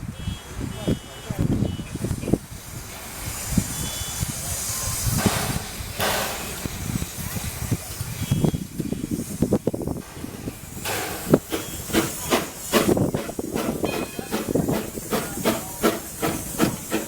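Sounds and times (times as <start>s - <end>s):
steam locomotive hissing: 0.4s - 17.0s
metal clanks: 5.2s - 7.0s, 10.0s - 17.0s.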